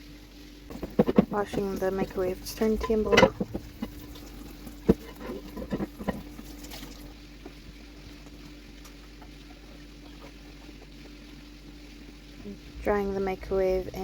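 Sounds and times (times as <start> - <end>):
faint steady hum: 0.0 - 14.0
water running in sink: 0.0 - 14.0
plate knocking against sink: 2.6 - 4.2.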